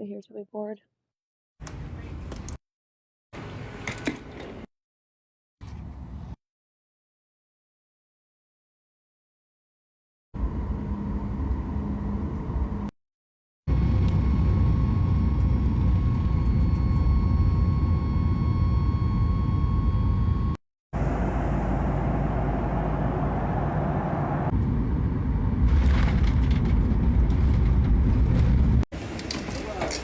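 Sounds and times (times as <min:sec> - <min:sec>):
jet engines rumbling: 0:13.7 - 0:30.0.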